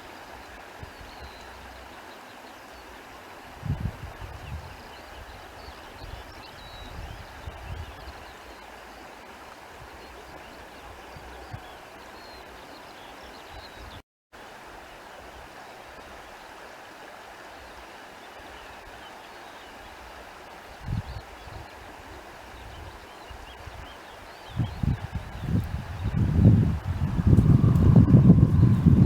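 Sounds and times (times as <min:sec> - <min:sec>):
flowing stream: 0:00.0 - 0:29.0
wind thumps on microphone: 0:03.6 - 0:04.8, 0:24.5 - 0:29.0.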